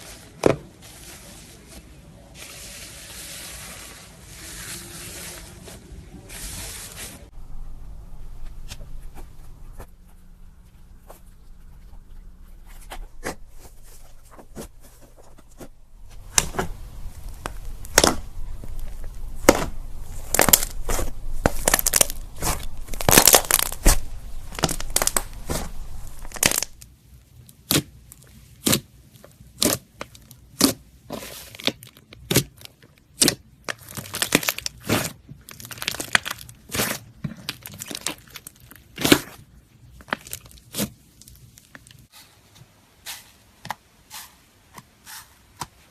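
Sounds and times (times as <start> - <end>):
slime popping and crackling: 16.2 - 26.8, 27.6 - 28.9, 29.5 - 30.8, 31.5 - 39.4, 40.0 - 42.0.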